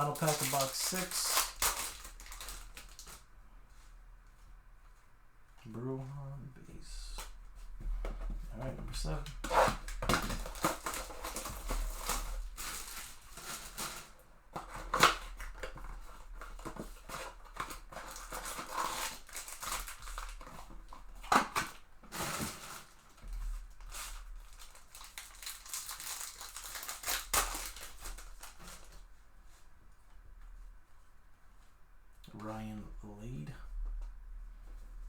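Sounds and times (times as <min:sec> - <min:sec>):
cards rustling and clicking: 0:00.0 - 0:03.2
foil wrapper crinkling: 0:00.0 - 0:03.3, 0:09.0 - 0:29.1
faint low hum: 0:00.0 - 0:35.0.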